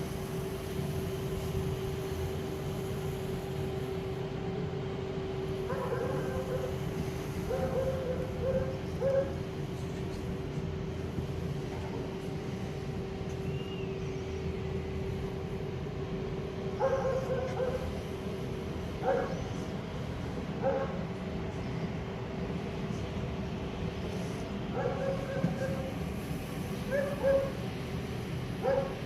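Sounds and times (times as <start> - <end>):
steady hum and low rumble: 0.0 - 29.0
dog barking: 5.7 - 6.8, 7.5 - 9.4, 16.8 - 17.9, 19.0 - 19.4, 20.6 - 21.0, 24.7 - 25.9, 26.9 - 27.6, 28.6 - 29.0.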